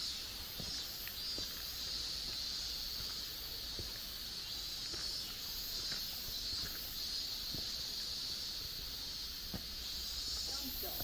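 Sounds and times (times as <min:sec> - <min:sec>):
insects buzzing and chirping: 0:00.0 - 0:11.0.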